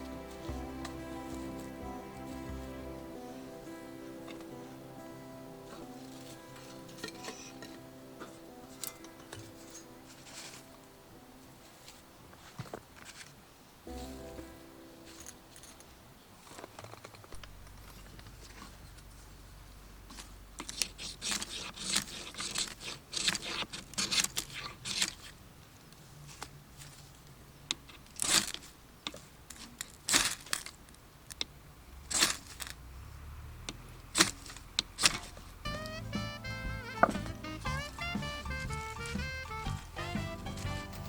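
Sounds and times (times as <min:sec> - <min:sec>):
crinkling and rustling: 0:05.6 - 0:32.9, 0:33.6 - 0:36.0.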